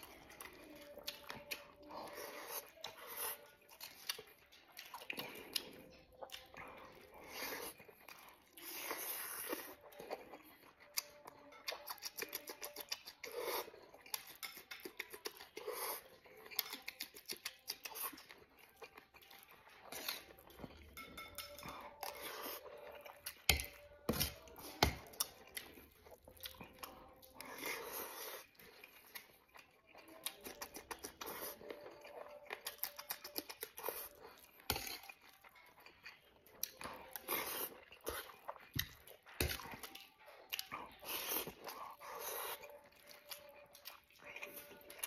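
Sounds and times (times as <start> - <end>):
man chewing and smacking: 0.0 - 21.0, 21.8 - 45.0.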